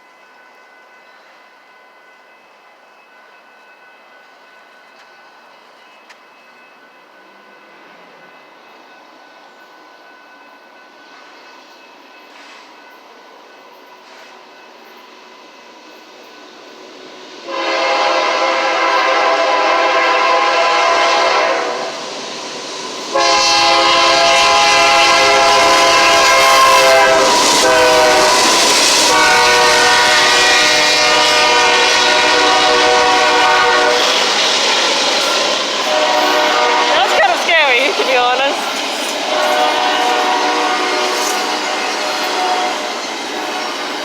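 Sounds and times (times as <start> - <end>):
approaching train rumble: 0.0 - 44.0
train horn blasts: 17.4 - 22.0, 23.1 - 34.5, 35.4 - 38.6, 39.2 - 44.0.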